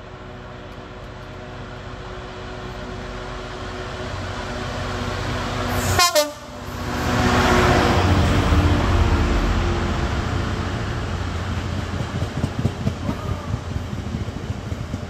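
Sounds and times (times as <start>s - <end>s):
locomotive engine rumbling: 0.0s - 15.0s
locomotive horn pip: 5.8s - 6.6s
train wheels knocking: 11.3s - 15.0s.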